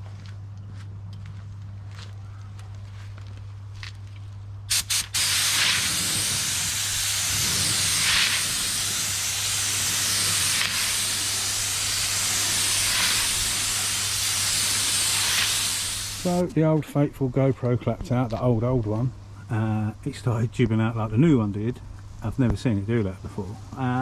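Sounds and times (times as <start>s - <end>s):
paint spray gun hissing: 4.7s - 16.5s.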